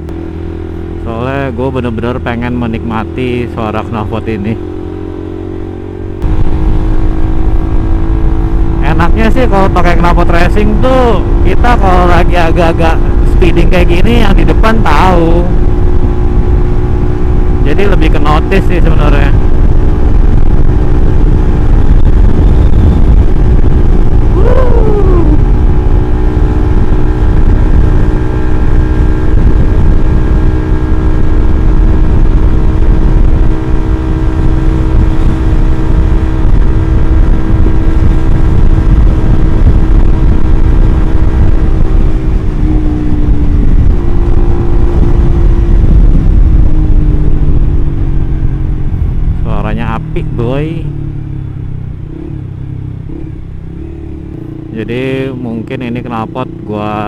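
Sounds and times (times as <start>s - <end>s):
motorcycle engine running: 0.0s - 57.0s
wind rumble: 4.4s - 56.7s
short falling whine: 20.1s - 28.1s.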